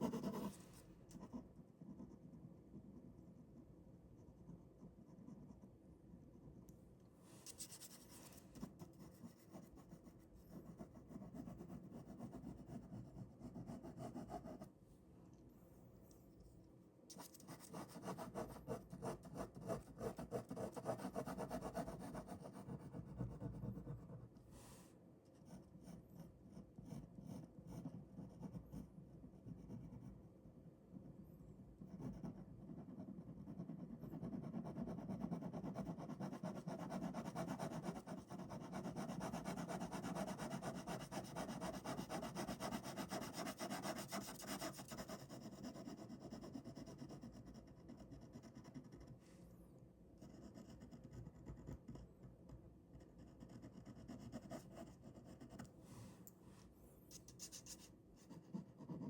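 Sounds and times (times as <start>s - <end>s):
pen scratching on paper: 0.0s - 0.6s, 31.8s - 49.1s, 53.2s - 55.7s, 57.2s - 59.0s.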